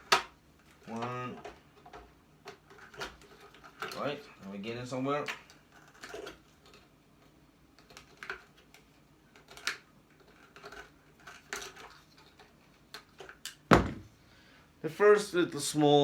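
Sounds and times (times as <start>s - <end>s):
loud knock: 13.7s - 14.1s.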